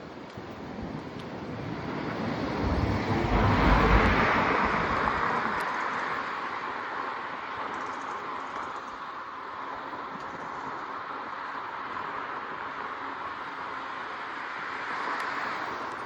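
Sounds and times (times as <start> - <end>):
vehicle passing by: 1.8 - 5.6.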